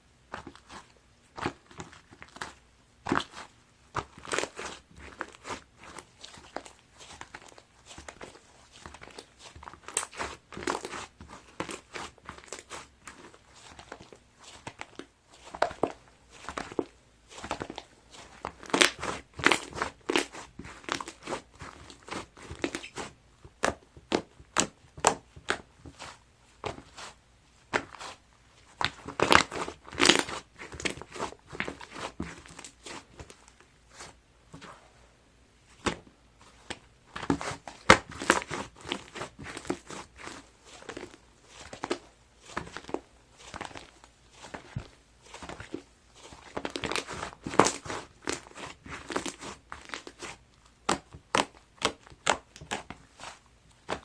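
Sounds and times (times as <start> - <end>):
crunchy slime squeezed by hand: 28.8 - 33.2.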